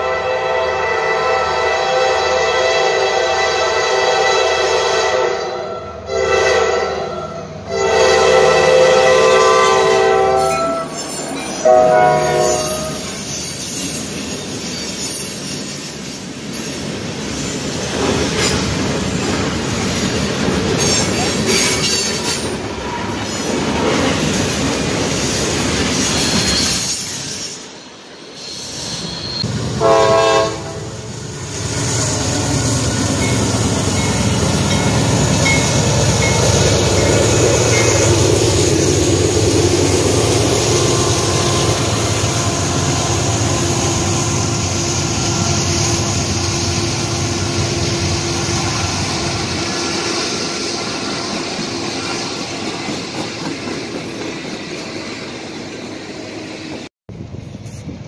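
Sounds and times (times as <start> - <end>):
locomotive horn blast: 0.0 - 11.0, 11.6 - 13.1, 29.8 - 31.1, 40.8 - 50.8
diesel locomotive engine rumble: 0.0 - 26.8, 27.7 - 58.0
freight cars rolling on rails: 7.4 - 29.8, 31.1 - 58.0.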